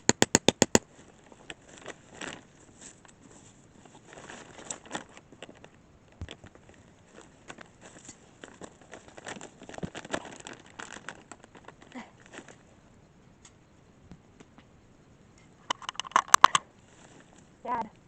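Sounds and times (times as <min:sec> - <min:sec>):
rustling and crinkling: 0:00.8 - 0:12.8, 0:15.7 - 0:17.9
small sharp clicks and knocks: 0:15.4 - 0:16.7.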